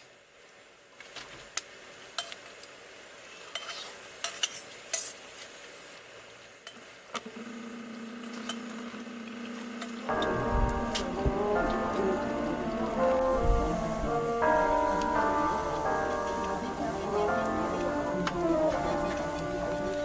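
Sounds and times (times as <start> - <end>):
background music: 10.1 - 20.0
steady hum: 10.1 - 20.0.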